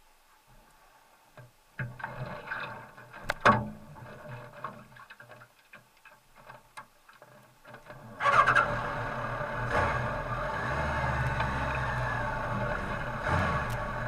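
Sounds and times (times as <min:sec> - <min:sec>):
clicks and light knocks: 0:00.5 - 0:08.0
motorcycle engine running: 0:08.2 - 0:14.0.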